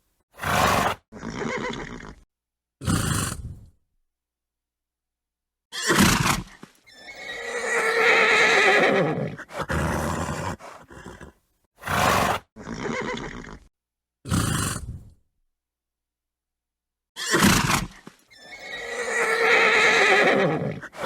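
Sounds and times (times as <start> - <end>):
horse neighing: 0.4 - 2.2, 5.7 - 13.7, 17.2 - 21.0
horse snorting: 2.8 - 3.7, 5.9 - 13.7, 14.3 - 15.2, 17.2 - 21.0.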